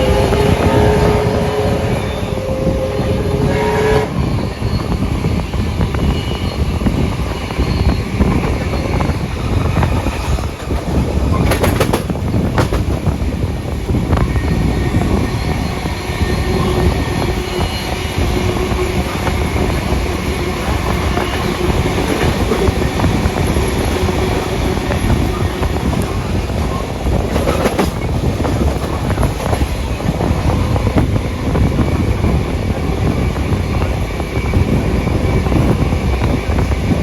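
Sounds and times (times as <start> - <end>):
steam train rumbling on track: 0.0 - 37.0
sharp rail clicks: 9.8 - 13.1.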